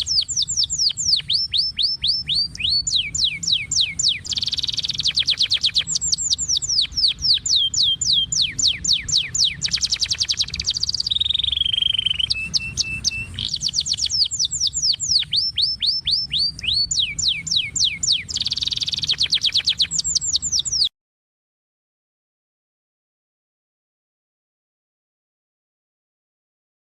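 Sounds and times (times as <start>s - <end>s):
faint low rumble: 0.0s - 20.8s
buzzy bird trills: 0.0s - 20.9s
songbird chirping: 0.0s - 20.9s.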